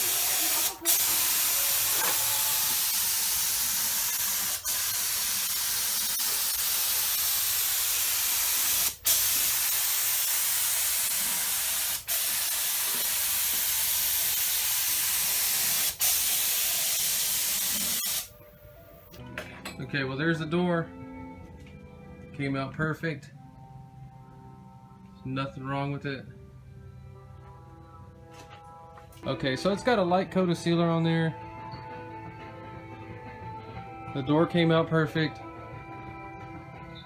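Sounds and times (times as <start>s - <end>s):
paint spray gun hissing: 0.0s - 18.3s.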